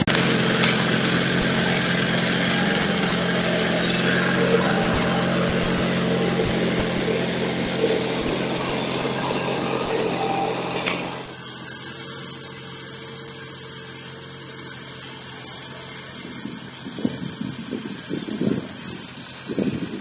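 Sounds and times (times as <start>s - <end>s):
irregular rough noise: 0.0s - 11.4s
garden tractor engine running: 0.0s - 20.0s.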